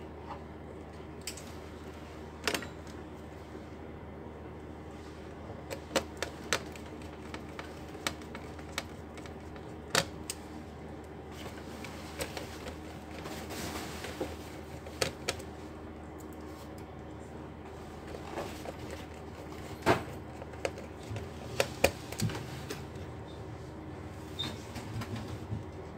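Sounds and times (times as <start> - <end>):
plastic laptop parts clicking: 5.7 - 10.4.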